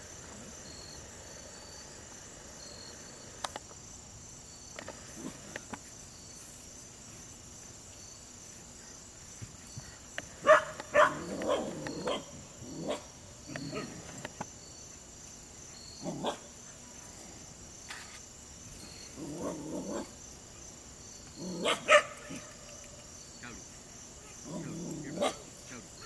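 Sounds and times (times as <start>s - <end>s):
insects chirring: 0.0s - 26.0s
dog barking: 10.4s - 14.0s, 16.0s - 16.5s, 21.5s - 22.5s, 24.2s - 25.5s.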